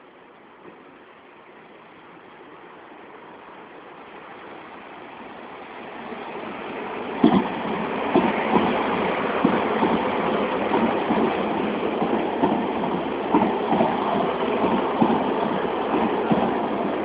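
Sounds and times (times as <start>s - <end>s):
train rolling past: 0.0s - 17.0s
wheels clacking over rail joints: 7.1s - 17.0s.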